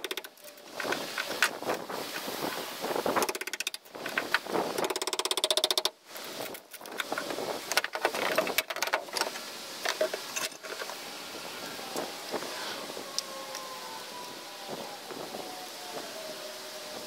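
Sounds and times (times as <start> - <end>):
knocks and scraping: 0.0 - 11.0
power tool rattling: 3.2 - 5.9.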